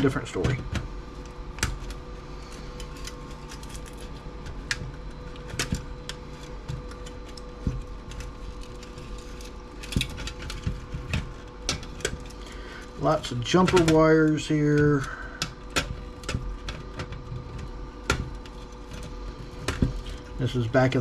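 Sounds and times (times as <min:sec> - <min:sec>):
steady hum: 0:00.0 - 0:21.0
hand tools clicking and snapping: 0:13.5 - 0:17.1.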